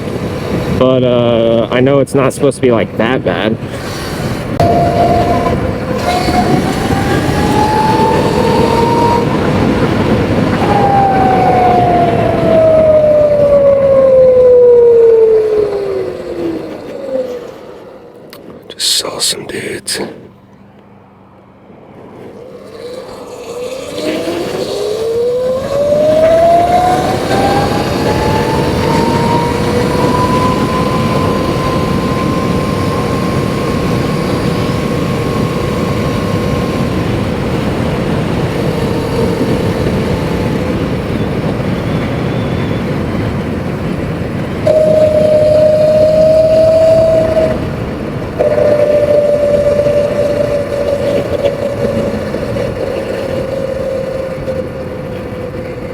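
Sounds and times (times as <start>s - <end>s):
wind rush and road noise: 0.0s - 55.9s
electric motor whining: 3.9s - 17.6s, 22.5s - 41.4s, 44.6s - 55.6s
loud steady whine: 4.2s - 22.5s, 23.5s - 55.9s.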